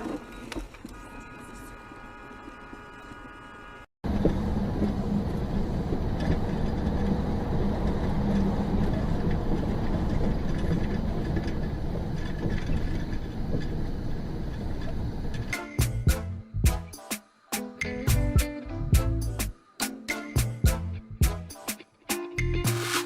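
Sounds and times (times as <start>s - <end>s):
road noise: 4.1s - 15.4s
vehicle engine rumble: 4.1s - 15.5s.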